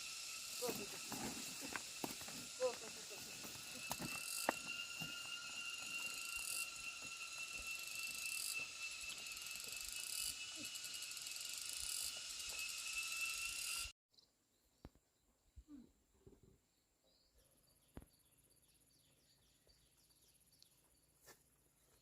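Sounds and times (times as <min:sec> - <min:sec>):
insects shrilling: 0:00.0 - 0:13.9.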